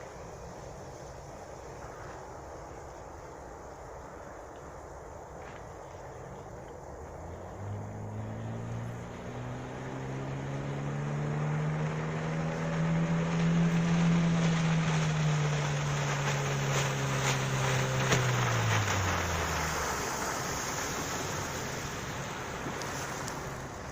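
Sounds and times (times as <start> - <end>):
wind: 0.0 - 23.9
water rushing: 6.0 - 23.9
outboard motor running: 6.8 - 23.9.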